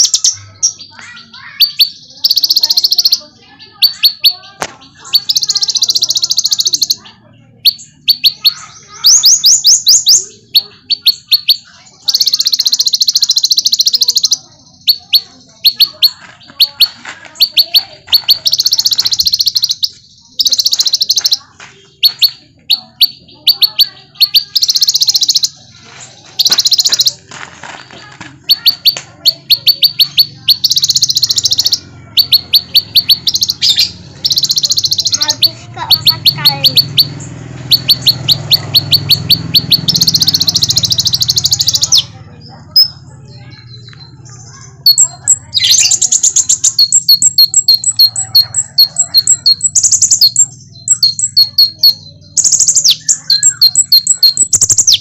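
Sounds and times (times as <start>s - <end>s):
bird high chirps: 0.0s - 55.0s.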